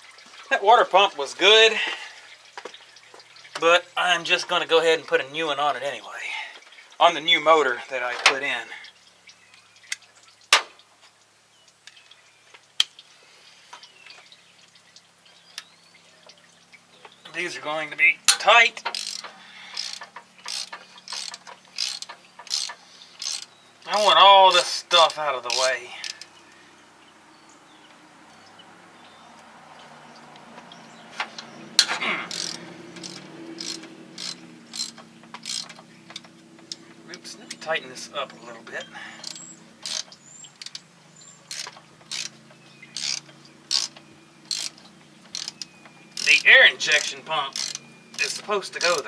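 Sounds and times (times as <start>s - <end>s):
ratchet wrench clicking: 18.3s - 23.5s, 32.3s - 36.2s, 39.2s - 40.8s, 41.5s - 42.4s, 43.0s - 49.0s
hand tools clinking on metal: 18.3s - 26.3s, 31.2s - 49.0s.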